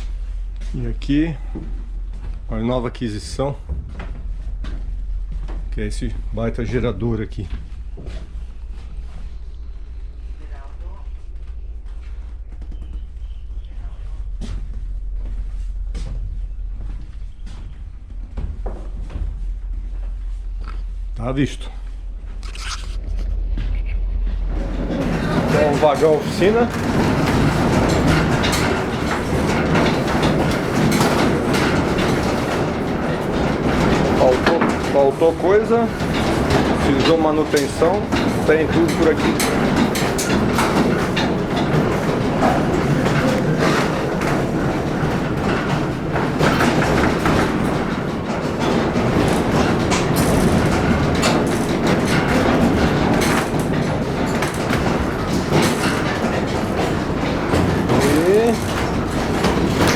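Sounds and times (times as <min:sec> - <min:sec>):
railway car rumbling: 0:00.0 - 0:59.9
wheels clattering over track: 0:24.3 - 0:59.9.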